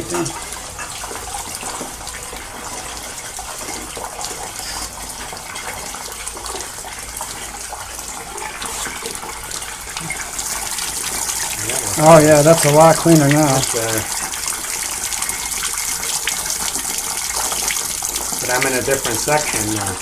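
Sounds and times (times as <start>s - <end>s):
water spraying from a wand: 7.0s - 9.2s.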